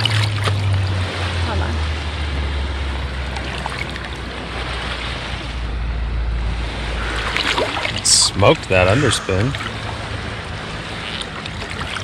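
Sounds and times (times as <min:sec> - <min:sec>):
water noise: 0:00.0 - 0:12.0
wind: 0:00.0 - 0:12.0
low rumble: 0:04.1 - 0:11.0.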